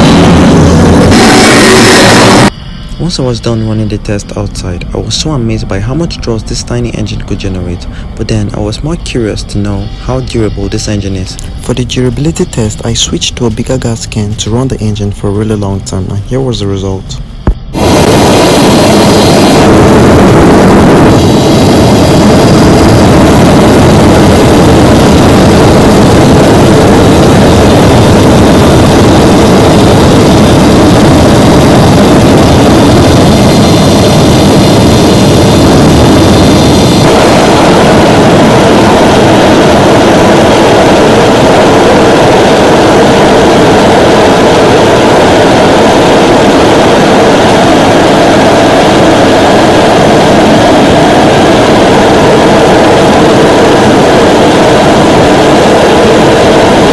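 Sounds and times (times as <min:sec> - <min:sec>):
gas rushing from exhaust: 0:00.0 - 0:03.1
motorjet engine running loudly: 0:00.0 - 0:14.9, 0:17.4 - 0:56.9
thin high whistling: 0:07.4 - 0:14.0.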